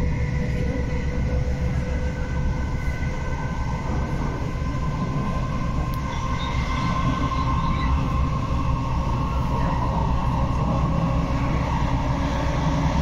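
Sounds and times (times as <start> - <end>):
faint whining tones: 0.0 - 13.0
train wheels rumbling on track: 0.0 - 13.0.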